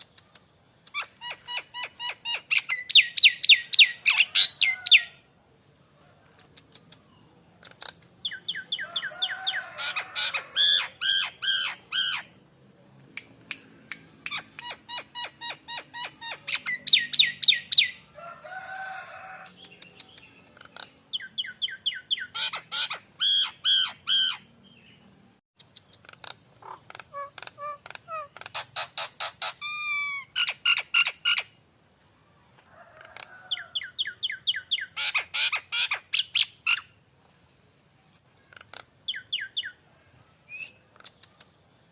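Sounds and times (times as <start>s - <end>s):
harsh squawky bird calls: 0.0s - 5.3s, 6.7s - 12.4s, 14.3s - 18.1s, 18.7s - 24.6s, 25.8s - 31.6s, 33.1s - 37.0s.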